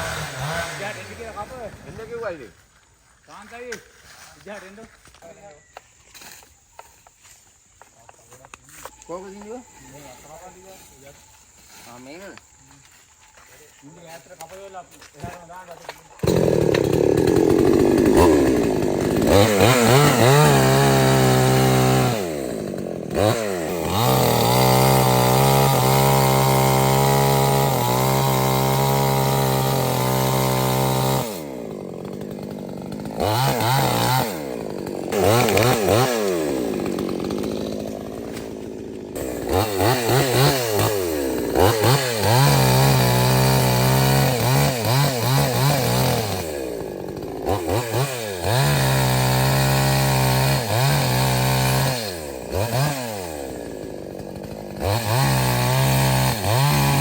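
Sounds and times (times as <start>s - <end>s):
chainsaw engine revving: 0.0s - 2.4s, 16.2s - 57.0s.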